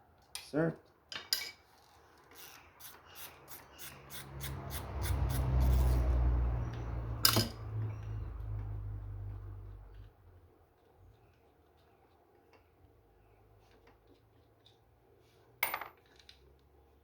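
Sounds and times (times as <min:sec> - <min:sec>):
ratchet wrench clicking: 0:02.3 - 0:06.2.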